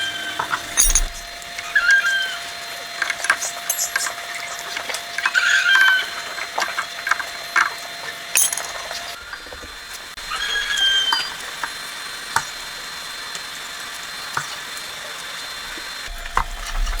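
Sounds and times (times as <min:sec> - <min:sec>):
hand tools on metal: 0:00.0 - 0:09.7.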